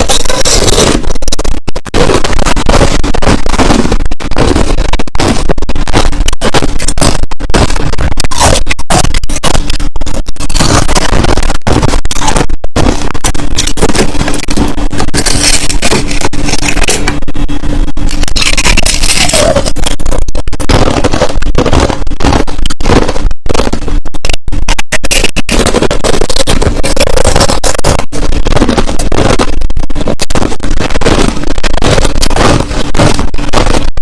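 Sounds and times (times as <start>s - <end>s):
crushed ice being chewed: 15.2s - 17.1s.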